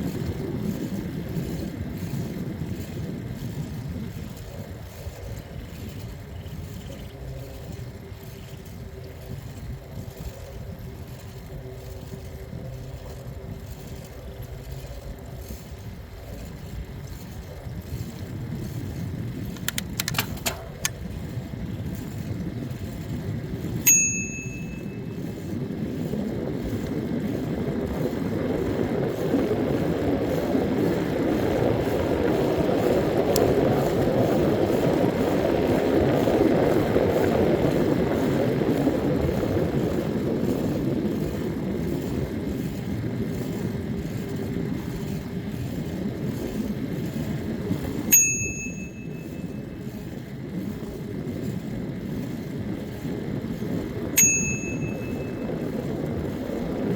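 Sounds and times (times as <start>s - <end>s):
wind and tyre rumble: 0.0s - 56.9s
sharp clicks: 19.5s - 21.1s
bicycle bell ding: 23.8s - 25.0s, 48.1s - 49.4s, 54.2s - 55.5s.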